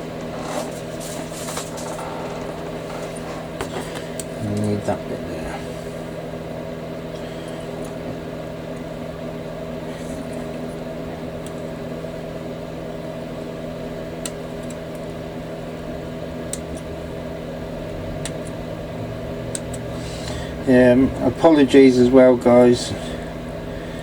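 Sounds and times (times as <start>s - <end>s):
steady machine hum: 0.0s - 24.0s.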